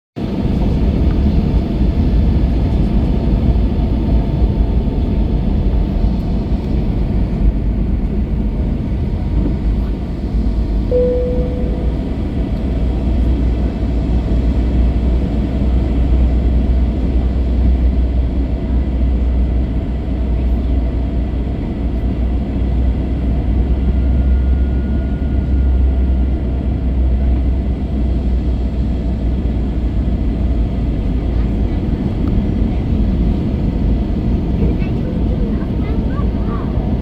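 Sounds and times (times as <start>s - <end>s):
airliner cabin engine noise: 0.2s - 37.0s
short tone: 10.9s - 13.0s.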